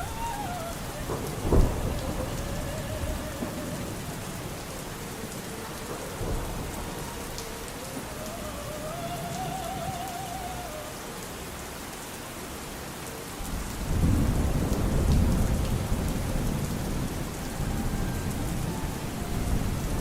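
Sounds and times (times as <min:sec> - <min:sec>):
low rumble of thunder: 0:00.0 - 0:10.0, 0:13.4 - 0:20.0
steady rain: 0:00.0 - 0:20.0.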